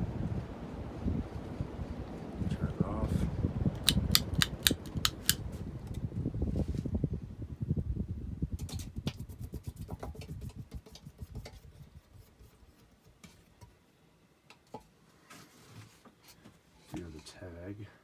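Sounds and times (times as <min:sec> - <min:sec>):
ceiling fan winding down: 0:00.0 - 0:06.2
light clicks: 0:03.8 - 0:05.4.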